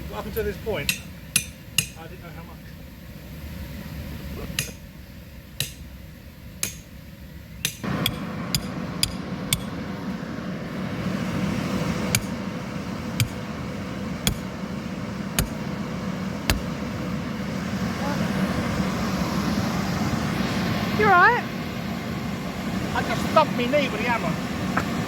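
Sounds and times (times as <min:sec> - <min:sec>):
steady mechanical hum: 0:00.0 - 0:25.0
hammer striking metal stakes: 0:00.8 - 0:02.0, 0:04.5 - 0:04.9, 0:05.6 - 0:06.0, 0:06.6 - 0:07.0, 0:07.6 - 0:09.8, 0:12.1 - 0:12.4, 0:13.2 - 0:13.4, 0:14.2 - 0:14.5, 0:15.4 - 0:15.6, 0:16.5 - 0:16.7.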